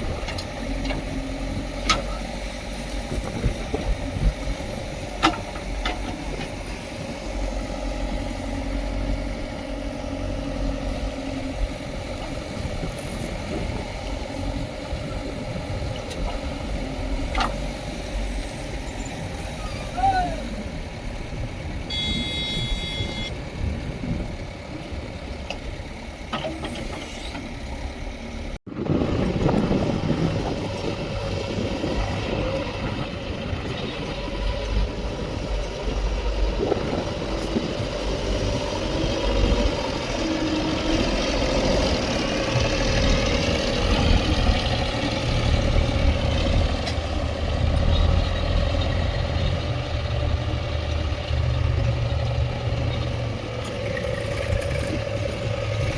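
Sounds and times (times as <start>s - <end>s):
diesel engines running: 0.0s - 55.9s
deep rumble: 27.6s - 55.9s.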